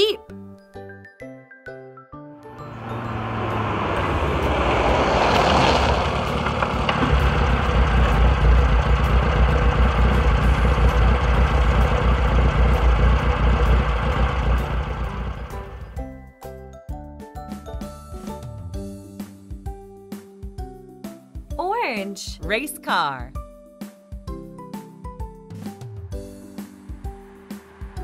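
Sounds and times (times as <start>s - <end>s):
car engine rumbling: 2.4s - 16.0s.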